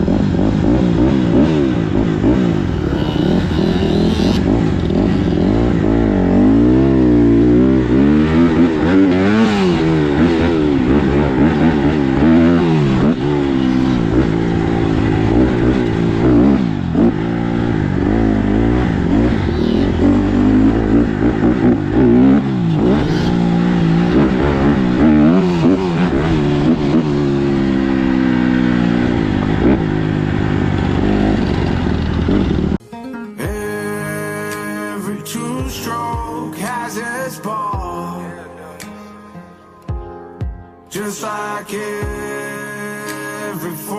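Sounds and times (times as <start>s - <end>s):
dirt bike engine revving: 0.0s - 32.8s.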